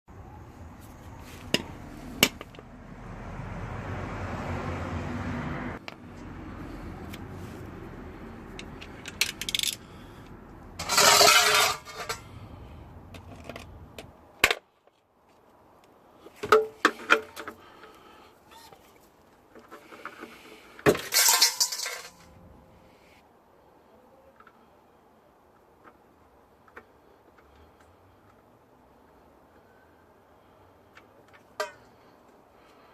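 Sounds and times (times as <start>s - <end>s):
metal tools clinking: 10.8s - 12.4s, 21.0s - 22.4s.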